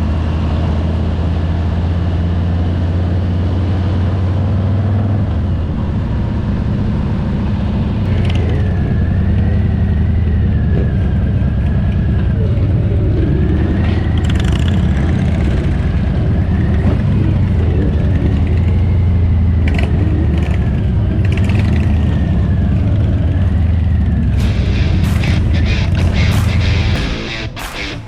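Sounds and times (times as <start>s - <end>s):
vehicle engine droning: 0.0s - 28.0s
sharp clicks: 24.4s - 28.0s.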